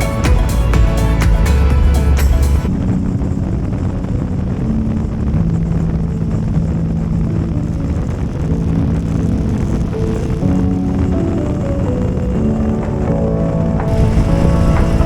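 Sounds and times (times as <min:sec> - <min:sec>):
loud motorcycle engine: 0:00.0 - 0:02.7.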